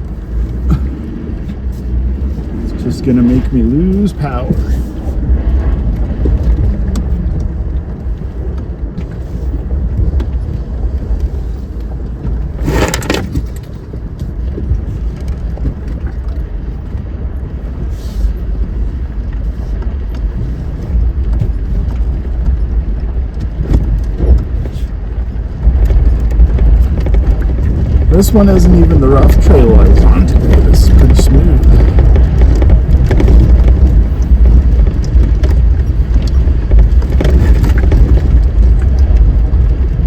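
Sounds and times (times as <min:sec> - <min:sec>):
vehicle engine and tyres rumbling: 0:00.0 - 0:40.0
sharp clatter: 0:12.4 - 0:13.9, 0:25.6 - 0:40.0.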